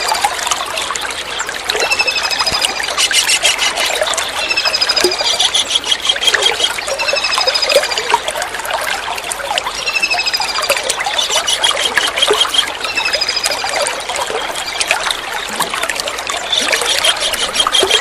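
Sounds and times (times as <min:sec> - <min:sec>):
running water trickling: 0:00.0 - 0:18.0
kingfisher trilled calls: 0:01.8 - 0:07.2, 0:11.1 - 0:13.4, 0:16.5 - 0:18.0.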